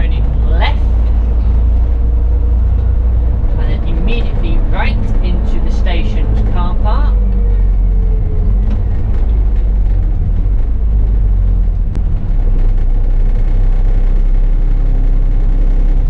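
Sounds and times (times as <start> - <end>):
bus engine and road noise: 0.0 - 16.0.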